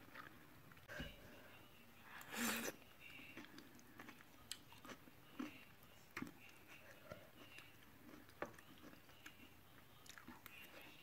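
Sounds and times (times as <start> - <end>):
faint chewing: 0.0 - 1.3, 2.1 - 11.0.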